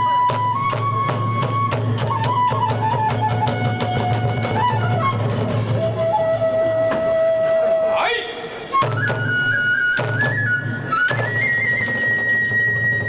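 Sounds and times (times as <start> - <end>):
bamboo flute melody: 0.0 - 13.0
drum strokes: 8.7 - 13.0.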